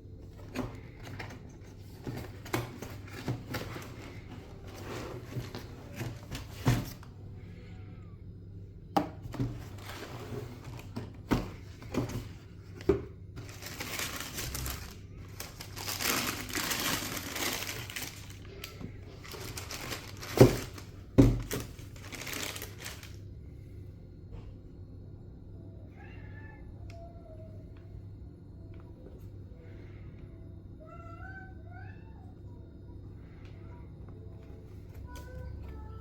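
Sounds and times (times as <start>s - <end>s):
paper crinkling: 11.9s - 23.2s.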